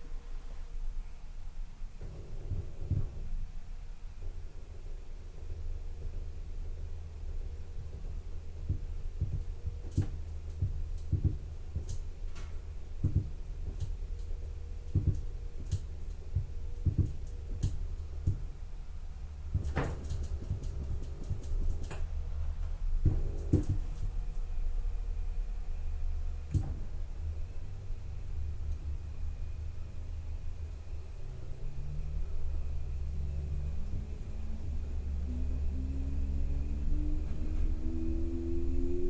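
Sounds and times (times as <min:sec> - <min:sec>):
washing machine motor hum: 0:00.0 - 0:39.0.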